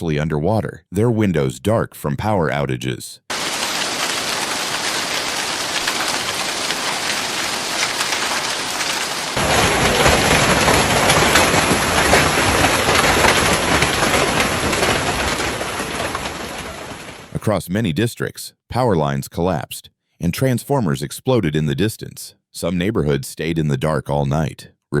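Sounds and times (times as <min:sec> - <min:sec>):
heavy rain pattering: 0:03.3 - 0:17.6
deep rumble: 0:09.4 - 0:17.0.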